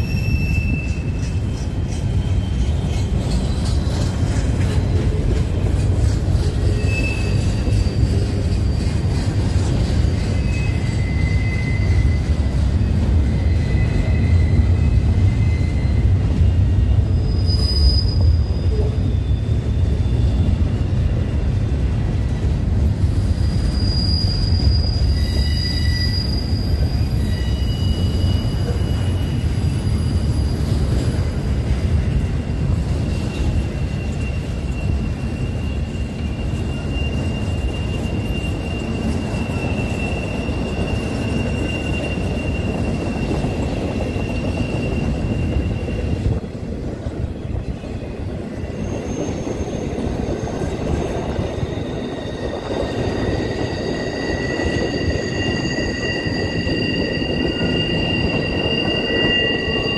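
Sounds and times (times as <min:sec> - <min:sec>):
train rumbling past: 0:00.0 - 0:59.9
train wheels squealing: 0:00.0 - 0:59.9.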